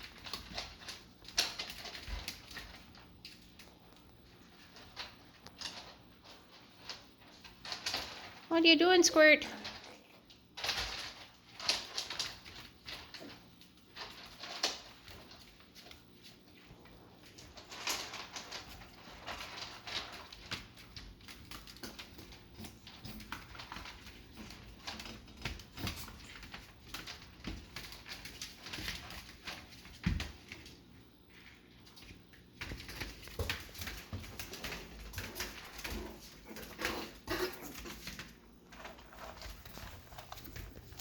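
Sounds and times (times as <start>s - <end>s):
puppy paws scuffling and pattering: 0.0s - 41.0s.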